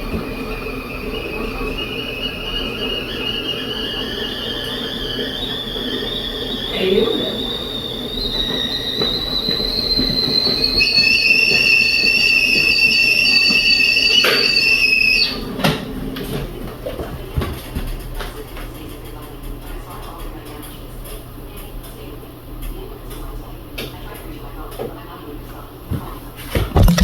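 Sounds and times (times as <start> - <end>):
tea kettle whistling: 0.0 - 15.9.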